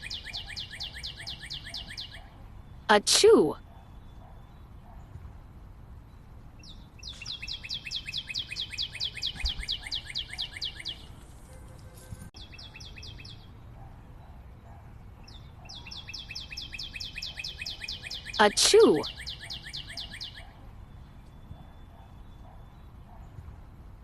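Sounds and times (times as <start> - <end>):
bird trilling high chirps: 0.0 - 2.3, 6.6 - 11.1, 15.7 - 20.5.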